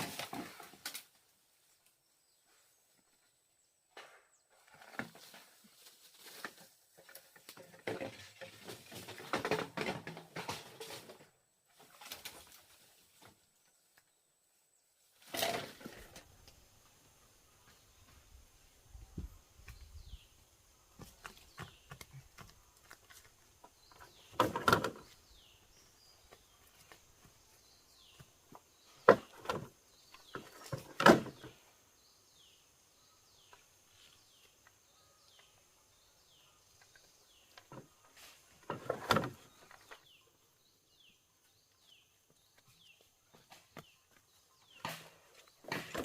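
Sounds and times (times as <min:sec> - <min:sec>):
birds chirping: 0:13.6 - 0:46.0.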